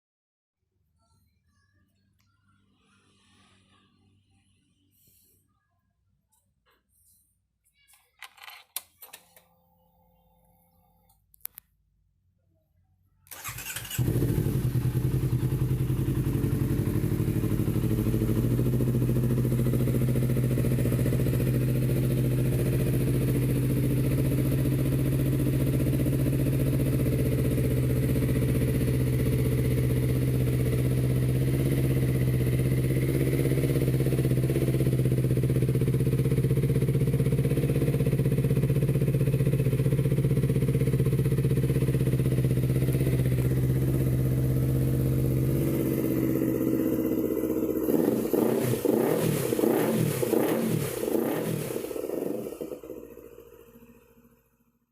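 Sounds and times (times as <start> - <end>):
motorcycle engine idling: 13.3 - 54.9.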